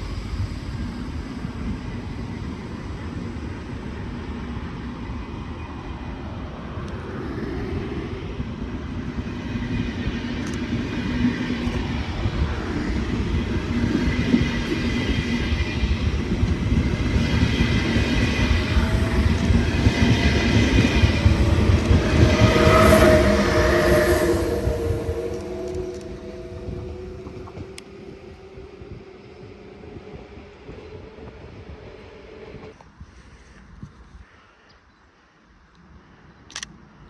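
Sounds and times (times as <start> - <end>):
train rumble: 0.0 - 32.9
steady higher tones: 11.8 - 32.7.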